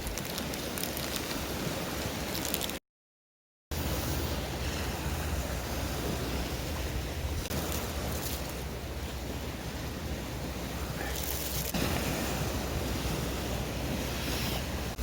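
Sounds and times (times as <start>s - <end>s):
sea surf: 0.0s - 2.8s, 3.7s - 15.0s
wind: 0.0s - 2.8s, 3.7s - 15.0s.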